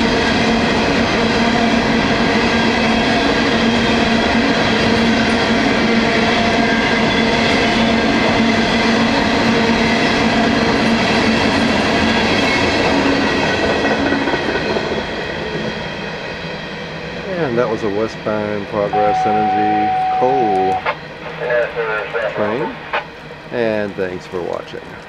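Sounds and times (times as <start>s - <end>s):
train wheels clattering: 0.0s - 18.7s
thin whining tones: 15.8s - 25.0s.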